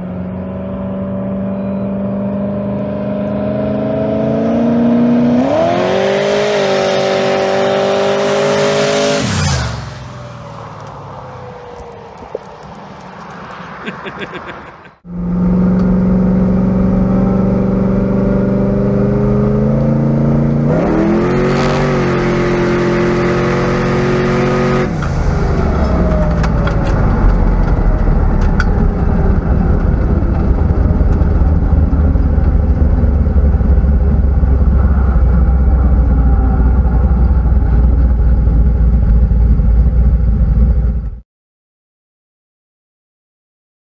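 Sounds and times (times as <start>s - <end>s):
car engine running loudly: 0.0s - 41.2s
deep rough engine rumble: 7.2s - 13.7s, 15.0s - 41.2s.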